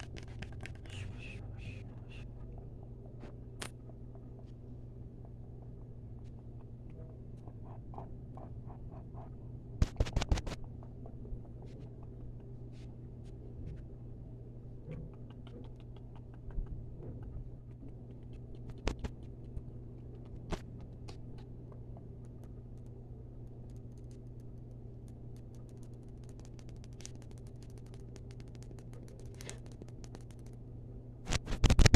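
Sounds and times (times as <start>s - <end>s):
steady low hum: 0.0s - 31.9s
asmr tapping and clicking: 9.8s - 12.7s, 14.9s - 30.6s.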